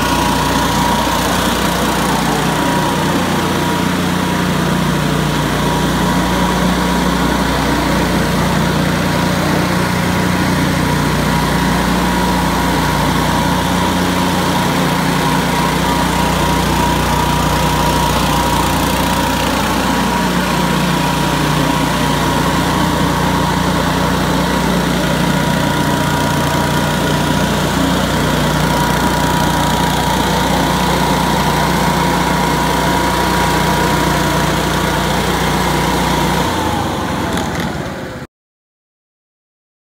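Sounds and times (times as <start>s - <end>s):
leaf blower running: 0.0s - 38.3s.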